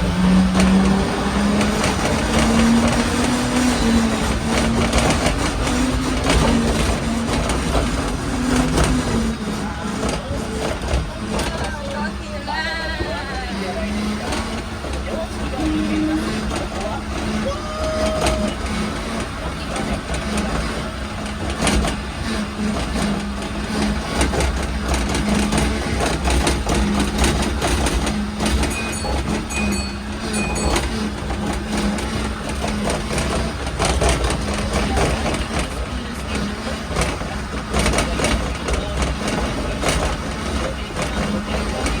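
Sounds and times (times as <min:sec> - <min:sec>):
short high beeps: 0:28.7 - 0:31.1.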